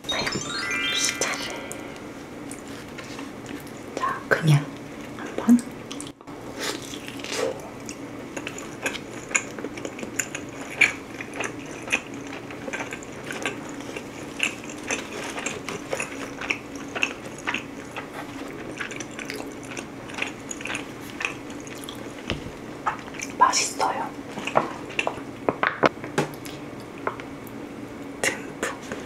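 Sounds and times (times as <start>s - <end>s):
chewing crunchy pizza crust: 5.9s - 23.4s, 24.2s - 27.0s.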